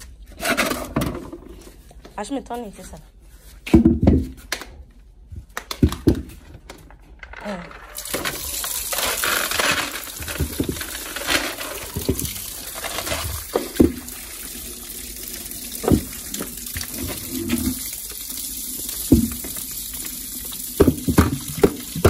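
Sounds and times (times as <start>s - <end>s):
tap water running and splashing: 7.9s - 22.0s
knocks and sloshes: 15.7s - 17.8s.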